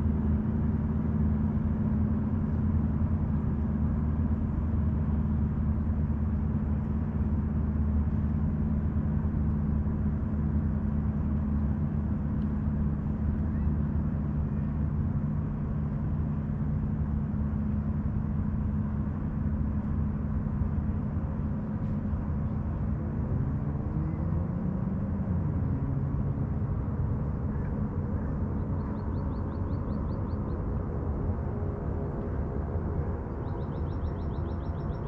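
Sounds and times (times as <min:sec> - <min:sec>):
motorboat engine passing: 0:00.0 - 0:35.0
bird trilling: 0:33.5 - 0:35.0.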